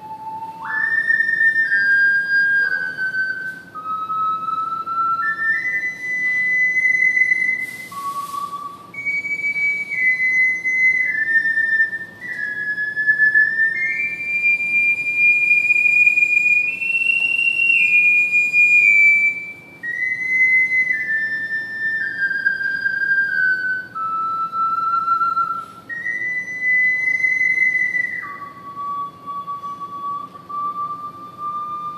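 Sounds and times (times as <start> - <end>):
ocarina playing slow melody: 0.0 - 31.9.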